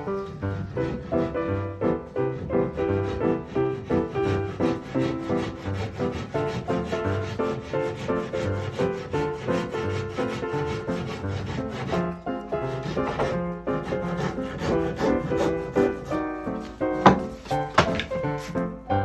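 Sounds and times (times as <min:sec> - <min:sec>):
rhythmic rubbing on wood: 0:00.0 - 0:19.0
keyboard music: 0:11.1 - 0:19.0.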